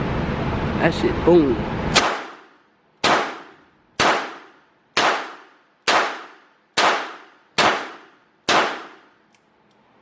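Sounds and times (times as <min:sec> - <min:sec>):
pistol shots: 0:02.0 - 0:09.2.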